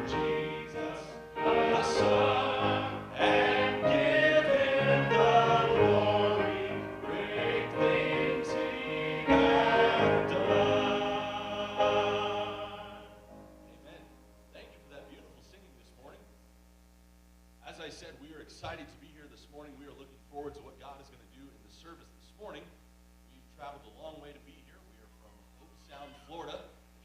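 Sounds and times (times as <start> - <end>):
vocal group singing in harmony: 0.0 - 13.2.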